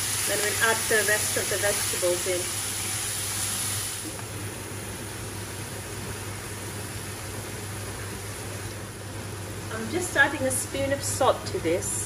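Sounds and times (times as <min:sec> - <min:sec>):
meat sizzling in a pan: 0:00.0 - 0:04.2.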